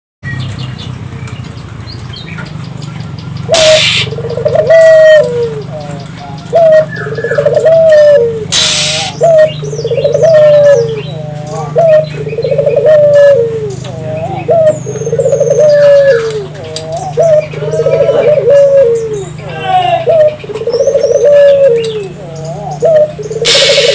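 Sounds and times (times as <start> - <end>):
small birds chirping: 0.2 - 23.9
dove rolling coos: 3.4 - 23.9
short bursts of noise: 3.6 - 4.1, 8.5 - 9.2.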